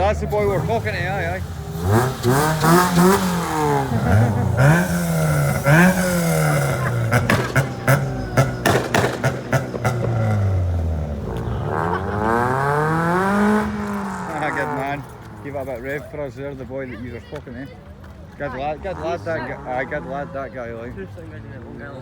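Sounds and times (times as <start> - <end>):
car engine revving: 0.0 - 16.0
exhaust pops and bangs: 1.7 - 11.6.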